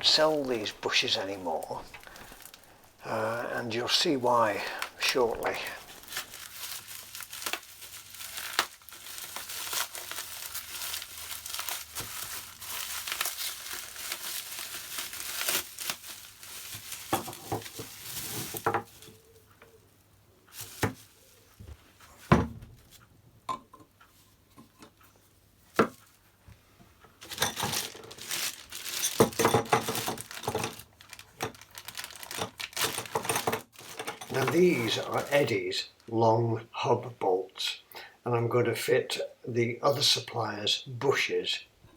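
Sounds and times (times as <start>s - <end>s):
packaging crinkling and tearing: 0.0s - 19.3s, 27.2s - 35.5s.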